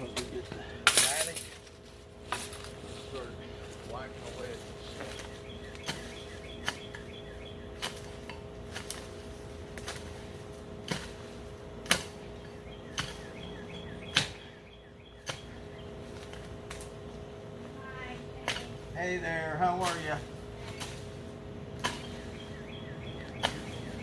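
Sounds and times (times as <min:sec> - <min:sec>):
low hum: 0:00.0 - 0:24.0
faint chirping: 0:21.9 - 0:24.0.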